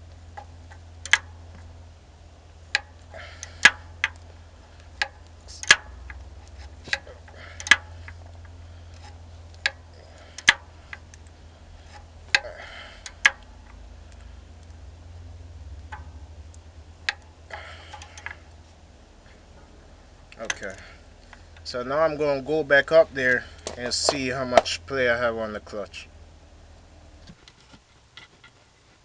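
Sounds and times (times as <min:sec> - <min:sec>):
low steady hum: 0:00.0 - 0:29.0
wrench clicking: 0:00.4 - 0:01.7, 0:02.7 - 0:04.3, 0:04.9 - 0:11.3, 0:11.9 - 0:14.8, 0:15.8 - 0:18.5.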